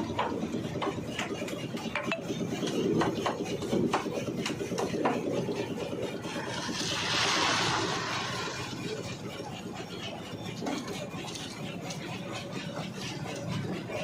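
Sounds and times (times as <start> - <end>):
steady mechanical rumble: 0.0 - 14.0.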